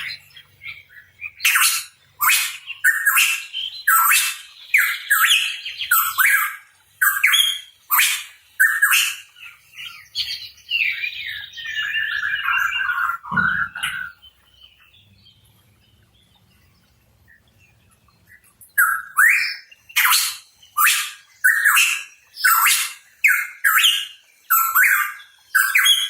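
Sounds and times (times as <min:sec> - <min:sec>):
bird calling harsh sweeping notes: 0:11.1 - 0:14.2.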